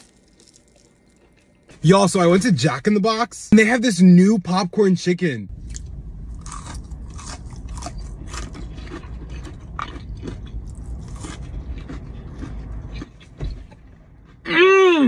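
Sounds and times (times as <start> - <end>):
chewing crispy fried chicken: 0.0 - 1.7, 5.7 - 13.4
low steady rumble: 0.0 - 15.0.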